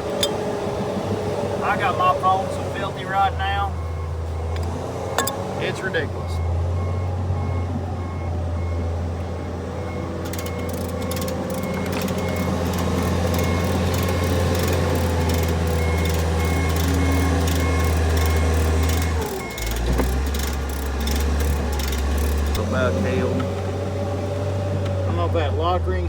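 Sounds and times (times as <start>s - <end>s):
heavy machine engine running: 0.0s - 26.0s
warning beeper: 1.6s - 4.6s, 5.2s - 19.8s
clicks and rattles: 10.2s - 22.6s.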